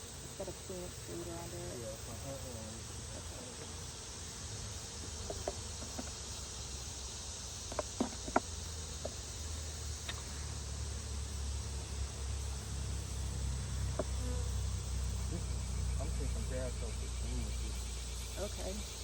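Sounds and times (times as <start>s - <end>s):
honeybees buzzing: 0.0s - 19.0s
hive frames knocking: 5.0s - 6.3s, 7.6s - 9.2s.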